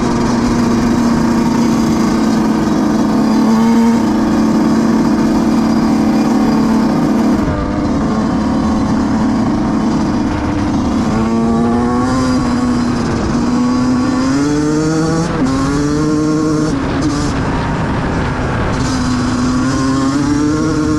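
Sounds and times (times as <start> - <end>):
dirt bike engine running: 0.0 - 20.9.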